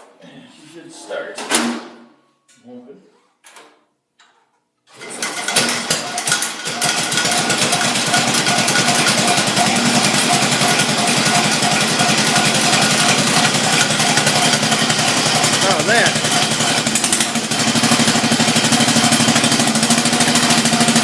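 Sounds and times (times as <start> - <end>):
garden tractor engine starting: 4.9 - 21.0.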